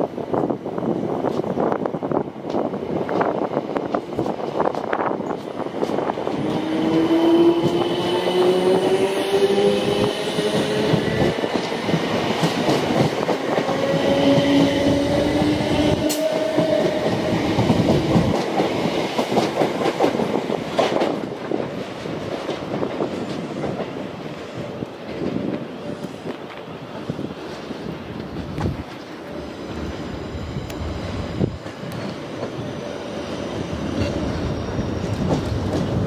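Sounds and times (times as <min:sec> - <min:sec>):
train wheels clattering: 0:02.5 - 0:24.0.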